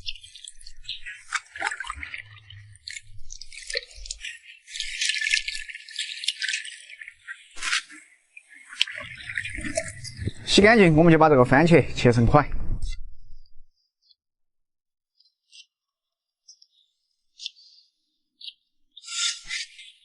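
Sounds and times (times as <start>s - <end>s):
tomatoes splashing in water: 0.3s - 8.0s.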